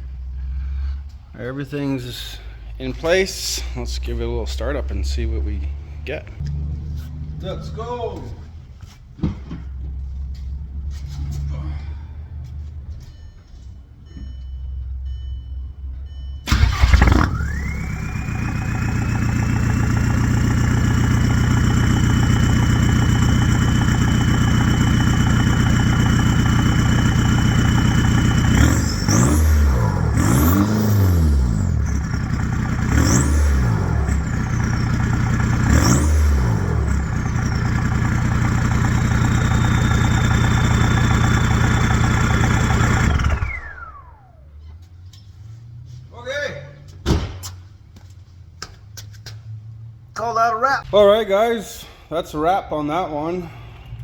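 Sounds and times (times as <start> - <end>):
diesel engine starting and idling: 0.0 - 13.4, 14.0 - 46.0
turbo whine: 16.4 - 44.5
engine revving: 16.5 - 44.4.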